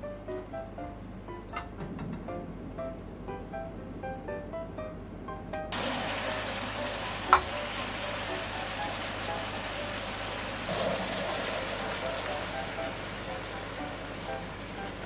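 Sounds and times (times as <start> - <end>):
light background music: 0.0 - 15.0
mushrooms sizzling in oil: 5.7 - 15.0
spatula knocking on pan: 7.3 - 7.6.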